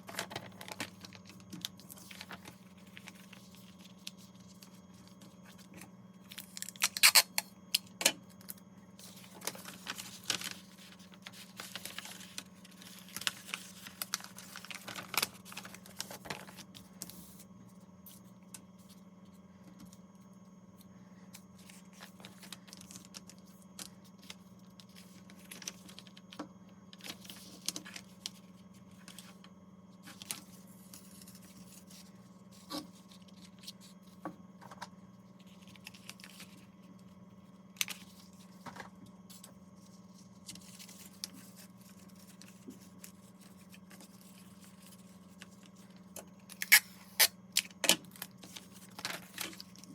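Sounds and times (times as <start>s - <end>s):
paper rustling and scraping: 0.0s - 6.6s, 9.0s - 19.0s, 30.0s - 37.1s, 37.8s - 47.3s, 48.1s - 49.9s
steady low hum: 0.0s - 49.9s.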